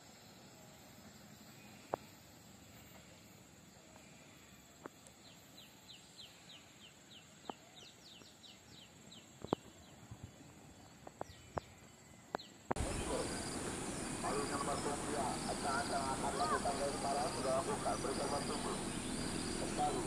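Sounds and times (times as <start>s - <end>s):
bird calling in falling notes: 12.8s - 20.0s.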